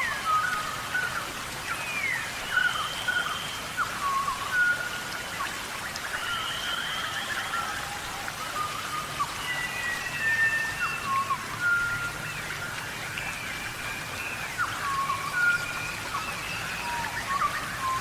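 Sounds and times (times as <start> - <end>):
steady rain falling: 0.0 - 18.0
whistled animal calls: 1.9 - 13.0.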